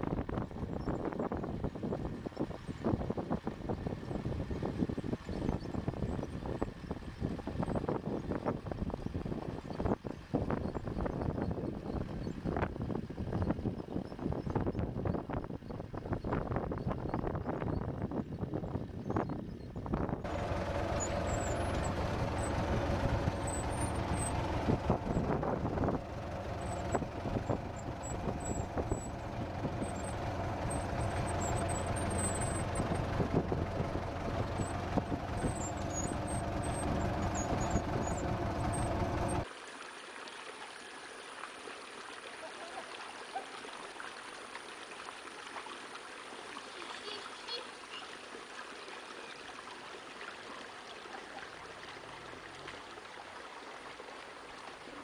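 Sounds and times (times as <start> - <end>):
heavy machine engine running: 20.2 - 39.4.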